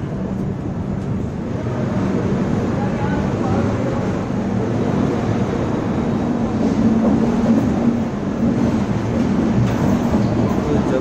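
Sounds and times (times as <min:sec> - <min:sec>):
train wheels on track: 0:00.0 - 0:11.0.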